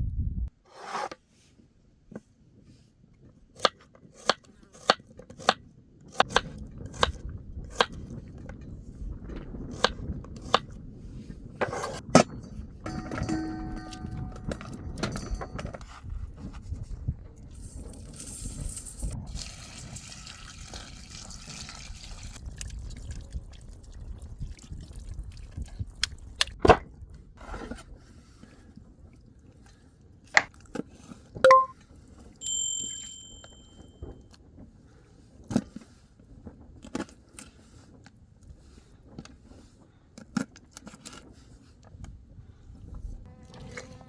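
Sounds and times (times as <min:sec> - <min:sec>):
utensils and cookware knocking: 0:12.9 - 0:15.8
metallic ring: 0:12.9 - 0:16.0, 0:32.4 - 0:33.9.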